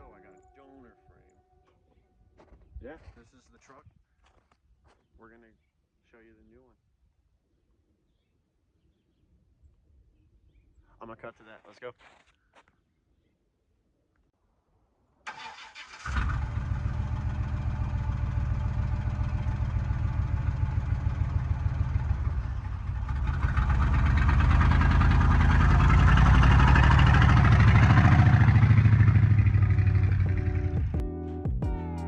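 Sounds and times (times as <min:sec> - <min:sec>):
starter cranking engine: 0:15.3 - 0:18.1
truck engine running and revving: 0:16.0 - 0:31.0.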